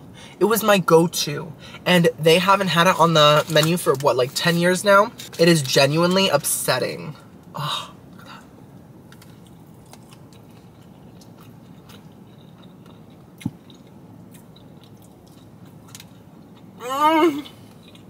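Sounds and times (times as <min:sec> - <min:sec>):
steady low hum: 0:00.0 - 0:18.0
quiet chewing: 0:09.1 - 0:16.7, 0:17.4 - 0:18.0.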